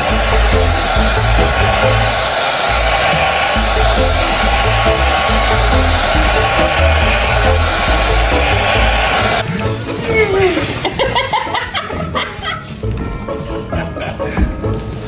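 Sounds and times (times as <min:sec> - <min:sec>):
loud rushing air noise: 0:00.0 - 0:09.4
music with pulsing bass beat: 0:00.0 - 0:09.4.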